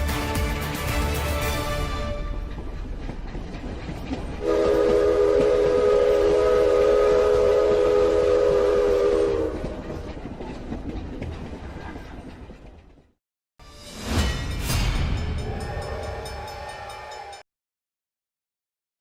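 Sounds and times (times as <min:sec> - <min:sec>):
train rumble: 0:00.0 - 0:13.2
train whistle chord: 0:04.4 - 0:09.7.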